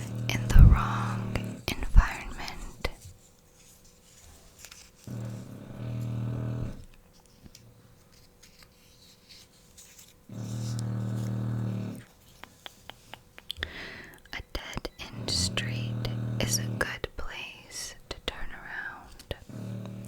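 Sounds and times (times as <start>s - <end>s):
puppy snoring: 0.0s - 3.1s, 5.0s - 7.0s, 10.3s - 20.0s.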